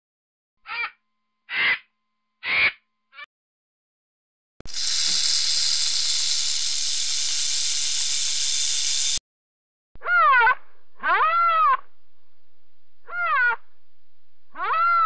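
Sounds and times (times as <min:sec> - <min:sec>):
rattlesnake tail rattle: 0:04.7 - 0:09.2.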